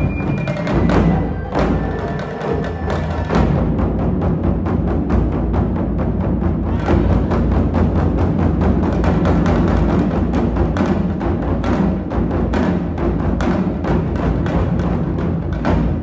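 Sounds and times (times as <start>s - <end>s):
drum ensemble playing: 0.0s - 16.0s.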